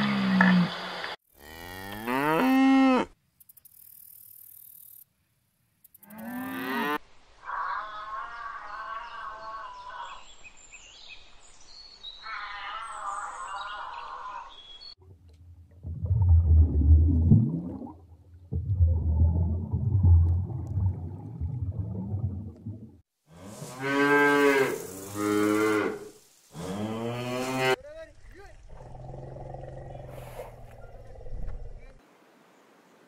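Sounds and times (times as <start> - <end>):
deep rumbling: 15.0 - 23.0.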